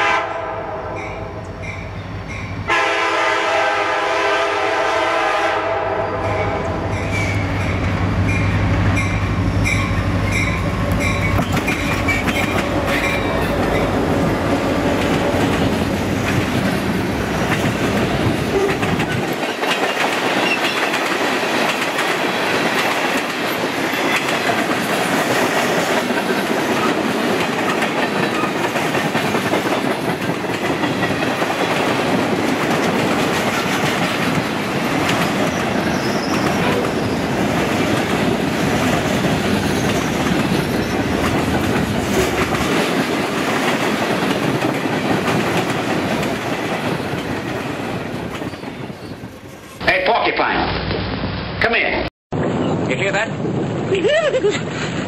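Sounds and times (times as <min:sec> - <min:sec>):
diesel locomotive engine drone: 0:00.0 - 0:19.5
crossing bell ringing: 0:01.0 - 0:02.7, 0:06.4 - 0:11.5
train wheels clattering over rail joints: 0:09.8 - 0:49.2.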